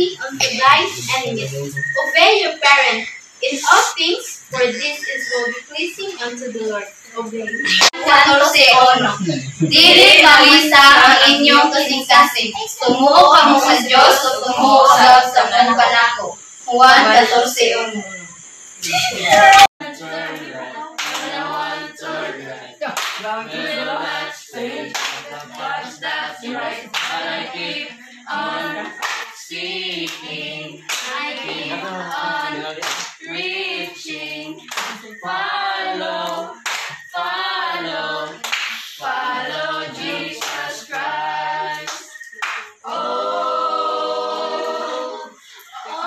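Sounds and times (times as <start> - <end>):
group singing unaccompanied: 0.0 - 46.0
hand claps: 21.0 - 21.3, 23.0 - 23.3, 24.9 - 25.6, 26.9 - 27.2, 28.8 - 29.4, 32.8 - 33.2, 34.7 - 35.0, 36.2 - 37.1, 38.4 - 38.8, 41.8 - 42.8.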